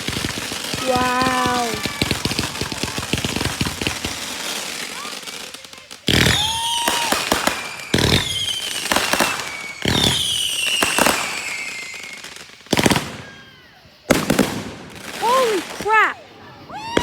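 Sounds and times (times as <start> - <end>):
fireworks bangs: 0.0 - 17.0
fireworks crackling: 0.0 - 17.0
high falling whistle: 6.2 - 13.8, 16.5 - 17.0.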